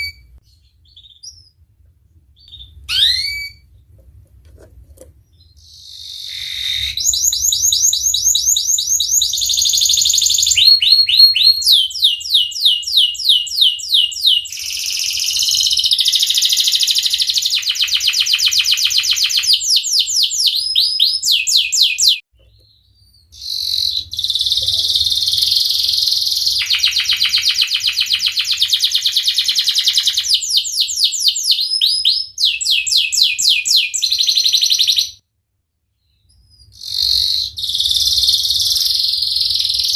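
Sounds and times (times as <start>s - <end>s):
canary singing trills: 2.4s - 3.8s, 5.3s - 35.2s, 36.2s - 39.9s.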